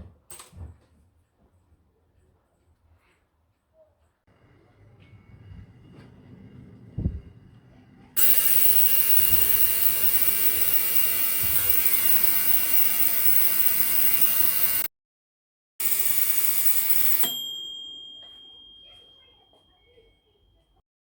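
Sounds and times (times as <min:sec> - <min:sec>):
ding: 0:17.0 - 0:20.4.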